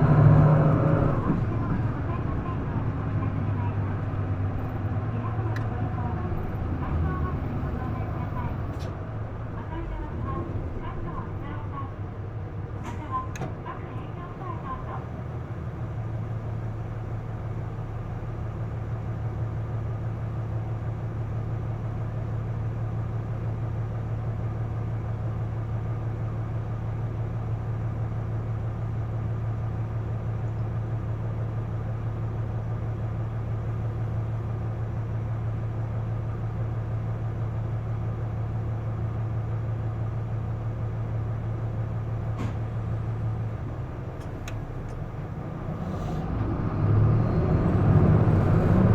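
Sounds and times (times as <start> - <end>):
bus diesel engine drone: 0.0 - 48.9
faint clicks: 44.2 - 45.3.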